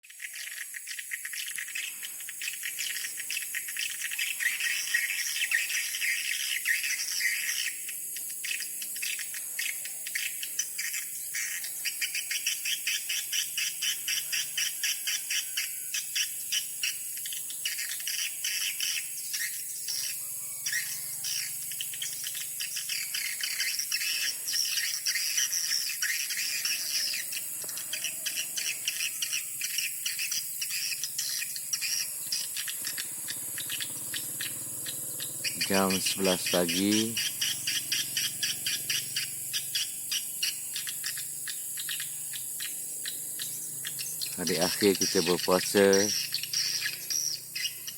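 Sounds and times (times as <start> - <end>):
swiftlets twittering: 20.7 - 47.9.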